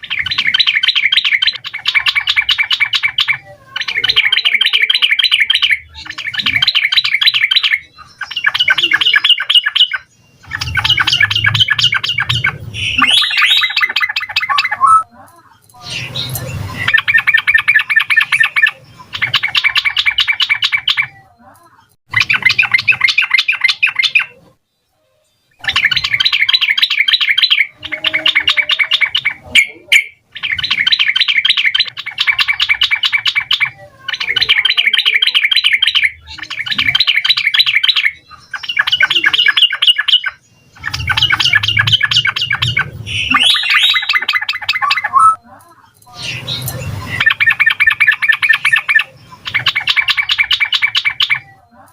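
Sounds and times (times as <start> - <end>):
bulbul singing bubbling song: 0.0 - 15.1, 25.6 - 45.4, 46.1 - 51.7.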